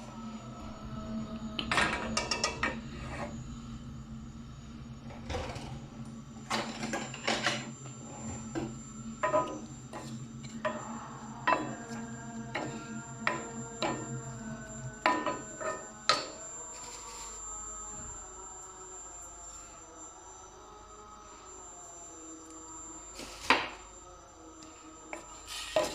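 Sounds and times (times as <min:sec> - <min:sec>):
low hum: 0:00.0 - 0:25.9.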